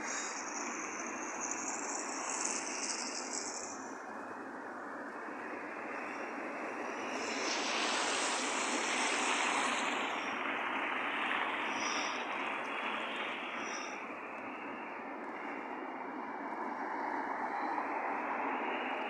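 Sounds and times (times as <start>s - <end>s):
faint high chirps: 0.0s - 4.0s
outdoor rushing noise: 0.0s - 19.0s.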